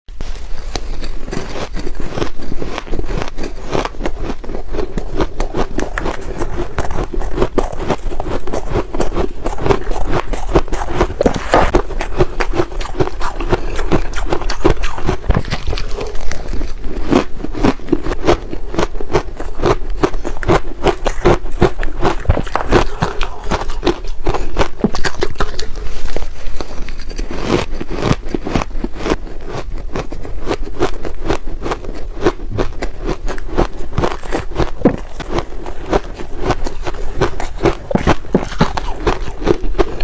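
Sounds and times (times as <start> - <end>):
ice being chewed: 0.2 - 40.0.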